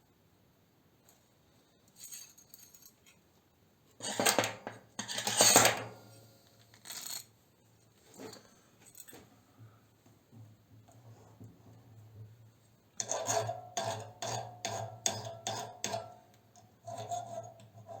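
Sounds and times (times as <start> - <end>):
small metal parts clinking: 2.0 - 3.2, 6.7 - 7.3.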